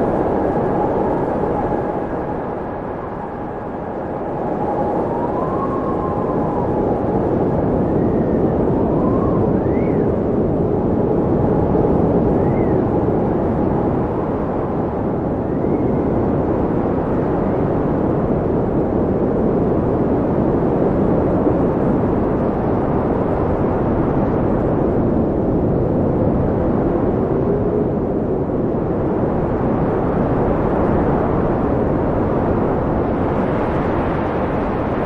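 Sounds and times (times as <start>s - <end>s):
wind blowing: 0.0s - 35.0s
faint whistling tones: 8.0s - 10.2s, 12.4s - 12.8s.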